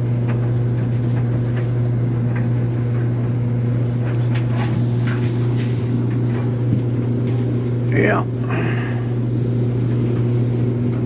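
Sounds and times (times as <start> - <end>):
clothes dryer humming: 0.0 - 11.0.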